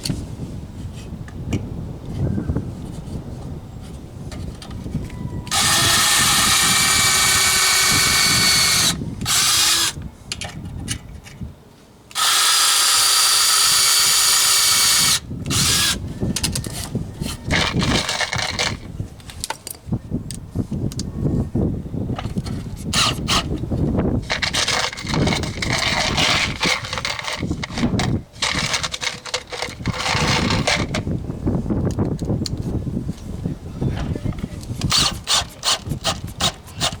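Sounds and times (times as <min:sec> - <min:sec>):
power drill running: 0:05.5 - 0:10.0, 0:12.1 - 0:16.0, 0:34.9 - 0:35.8
handling clatter: 0:24.2 - 0:31.0.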